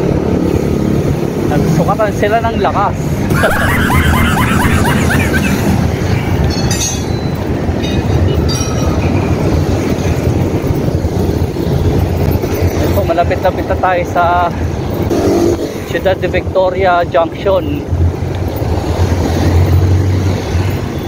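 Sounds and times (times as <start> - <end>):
trucks and cars passing: 3.0 - 6.5, 17.8 - 21.0.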